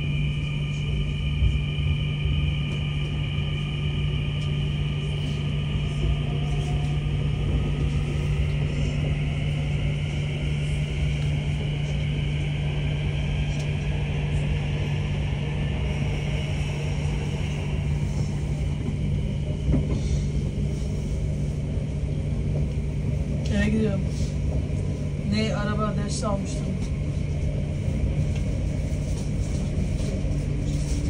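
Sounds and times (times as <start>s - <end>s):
high motor whine: 0.0s - 23.9s
train hum and rumble: 0.0s - 31.0s.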